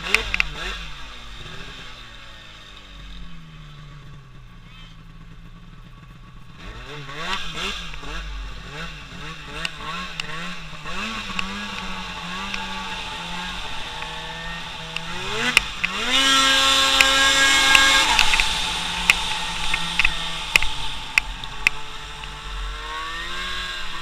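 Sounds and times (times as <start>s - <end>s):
small engine revving: 0.0s - 24.0s.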